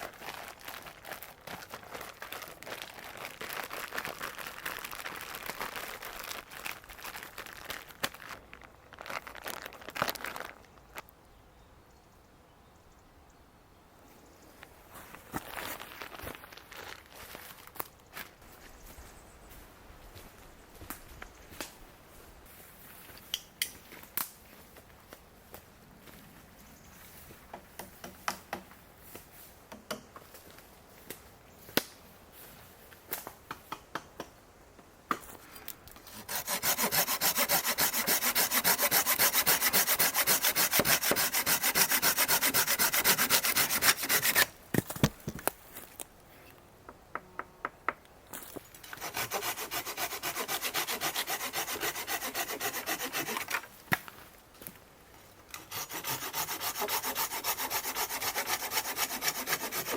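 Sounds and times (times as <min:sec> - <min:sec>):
wood being sawn by hand: 0:36.1 - 0:44.5, 0:48.9 - 0:53.6, 0:55.6 - 0:59.9.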